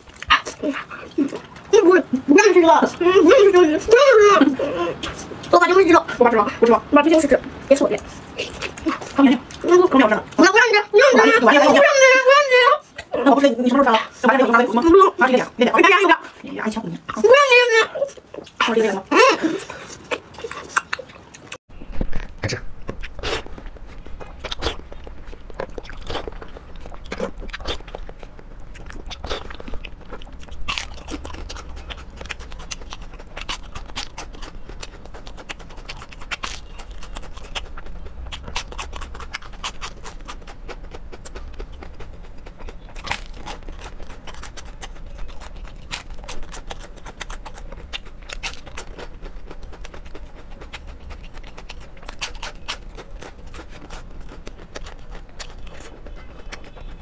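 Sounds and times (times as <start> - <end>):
crunching and chewing fried food: 0.0 - 57.0
steady low hum: 12.8 - 57.0.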